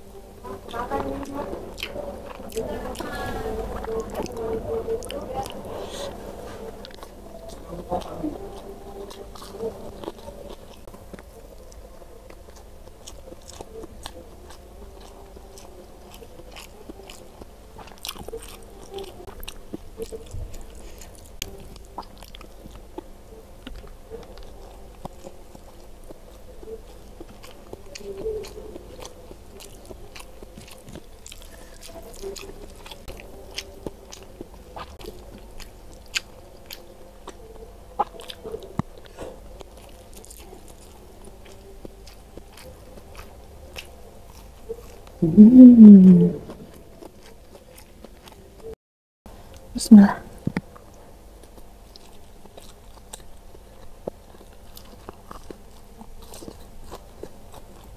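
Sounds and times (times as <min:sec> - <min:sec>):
person chewing food: 0:00.0 - 0:48.8, 0:50.4 - 0:57.9
mouth clicks: 0:45.2 - 0:46.8.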